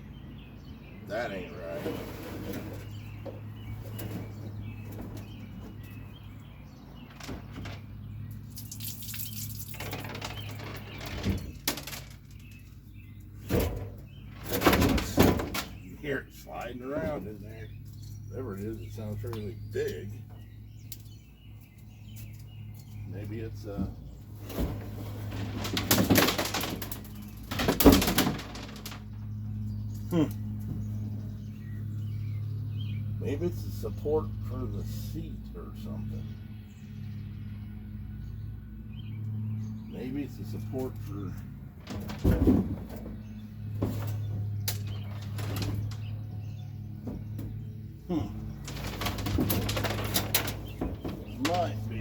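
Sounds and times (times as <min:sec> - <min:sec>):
object sliding inside plastic hull: 0:01.6 - 0:03.0.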